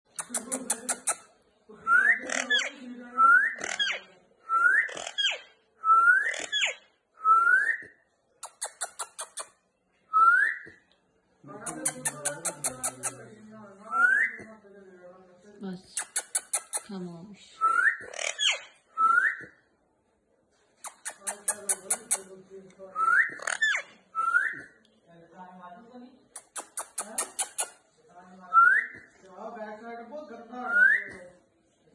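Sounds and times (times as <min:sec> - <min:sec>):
parrot clicking: 0:08.4 - 0:09.5, 0:11.6 - 0:13.2, 0:16.0 - 0:16.9, 0:20.8 - 0:22.3, 0:26.3 - 0:27.8.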